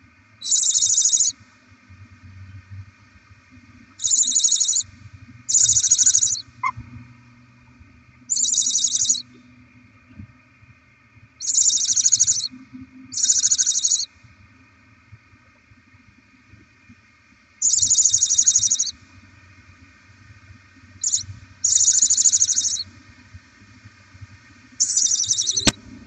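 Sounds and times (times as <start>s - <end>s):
owls hissing calls: 0.4s - 1.3s, 4.0s - 4.8s, 5.5s - 6.8s, 8.3s - 9.2s, 11.4s - 12.5s, 13.1s - 14.1s, 17.6s - 18.9s, 21.0s - 22.8s, 24.8s - 25.8s.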